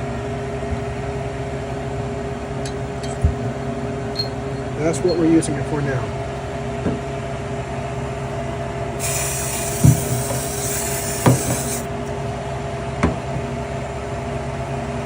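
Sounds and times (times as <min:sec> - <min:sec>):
steady hum: 0:07.6 - 0:12.4
aerosol can spraying hiss: 0:09.0 - 0:11.9.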